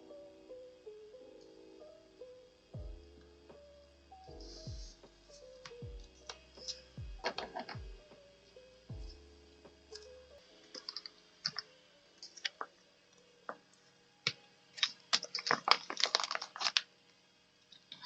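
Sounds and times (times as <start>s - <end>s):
paper crinkling: 10.7s - 12.7s, 14.7s - 16.9s.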